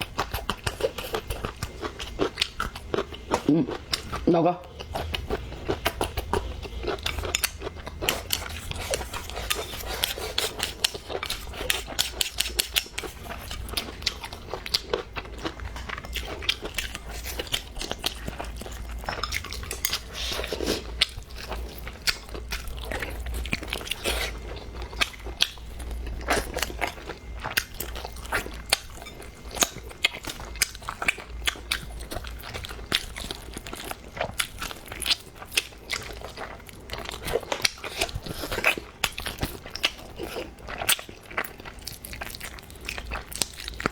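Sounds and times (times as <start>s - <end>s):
person chewing and crunching food: 0.0s - 43.9s
steady low hum: 0.0s - 43.9s.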